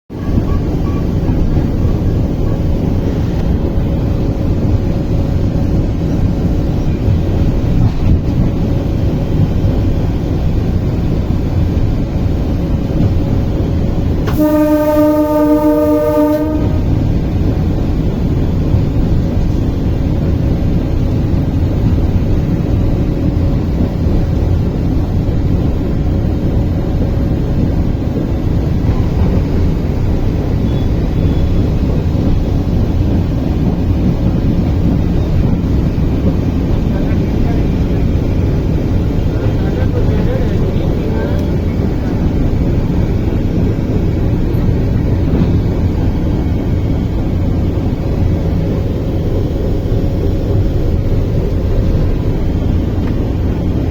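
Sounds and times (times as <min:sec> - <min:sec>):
train rumbling: 0:00.1 - 0:53.9
train horn: 0:14.2 - 0:17.2.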